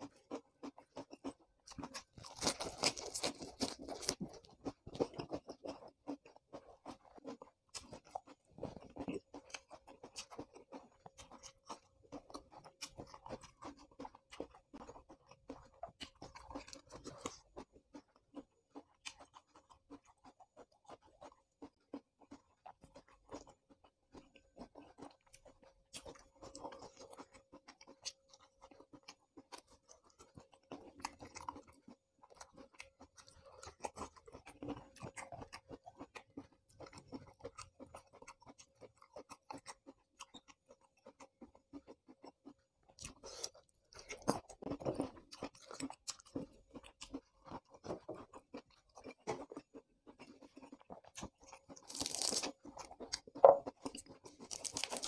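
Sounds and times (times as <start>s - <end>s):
wet chewing clicks: 0.0s - 55.0s
crunching leafy vegetables: 1.2s - 6.2s, 43.1s - 55.0s.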